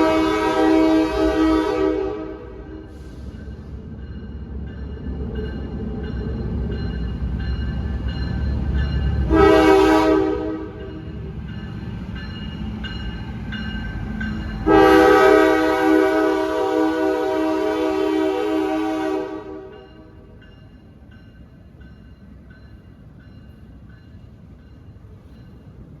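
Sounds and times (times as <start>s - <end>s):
locomotive air horn blasts: 0.0s - 2.9s, 9.3s - 10.8s, 14.6s - 19.8s
train rumble: 0.0s - 26.0s.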